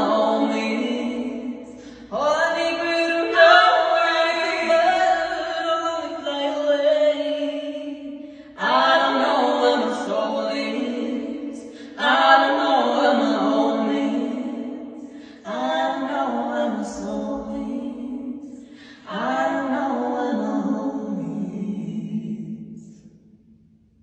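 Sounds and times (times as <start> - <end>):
voices singing a cappella: 0.0 - 23.0.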